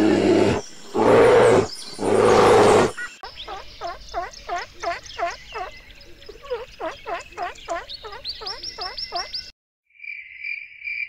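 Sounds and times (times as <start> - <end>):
bear growling: 0.0 - 3.0.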